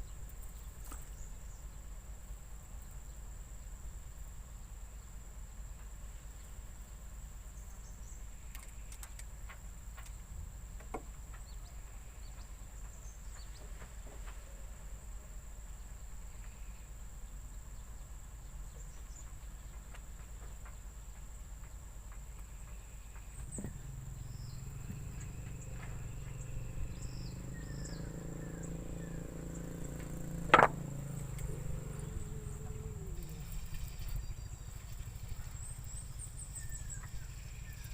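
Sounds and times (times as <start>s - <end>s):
insects droning: 0.0s - 37.9s
faint clicks: 8.5s - 10.2s
steady low rumble: 23.2s - 37.9s.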